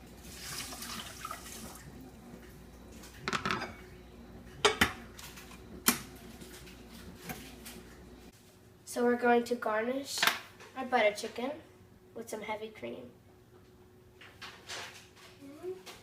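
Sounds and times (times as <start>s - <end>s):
faint running water: 0.0s - 3.2s
pots and utensils clattering: 3.2s - 3.9s.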